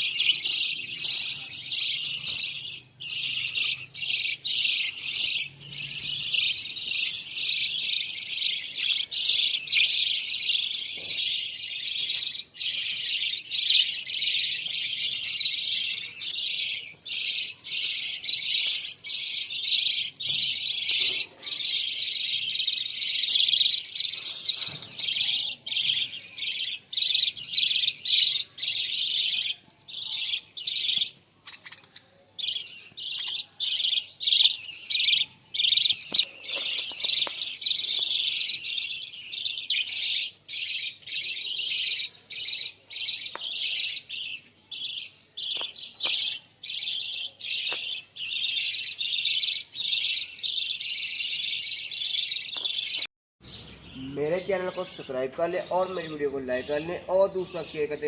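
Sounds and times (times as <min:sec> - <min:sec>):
budgerigars chattering: 0:00.0 - 0:58.0.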